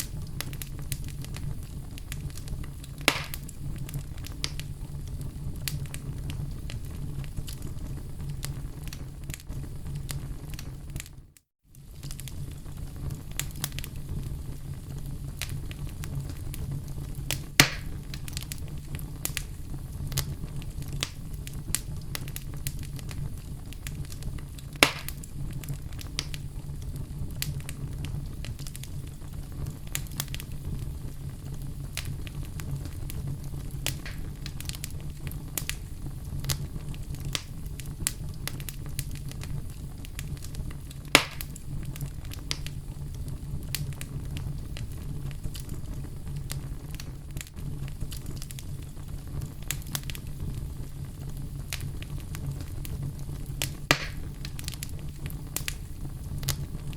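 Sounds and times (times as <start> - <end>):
fire low rumble: 0.0 - 56.9
fireplace fire crackling: 0.0 - 56.9
sharp wood pops: 3.1 - 3.4, 17.6 - 17.9, 24.8 - 25.2, 34.0 - 34.2, 41.2 - 41.5, 53.9 - 54.2.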